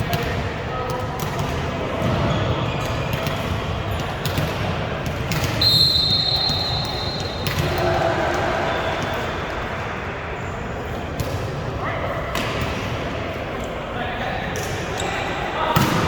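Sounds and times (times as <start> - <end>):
referee's whistle: 5.6 - 7.5
crowd murmur: 5.9 - 16.0.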